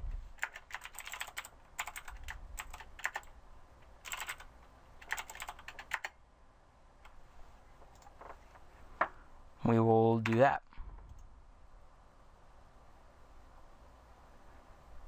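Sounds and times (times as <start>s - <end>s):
computer keyboard typing: 0.4s - 6.1s.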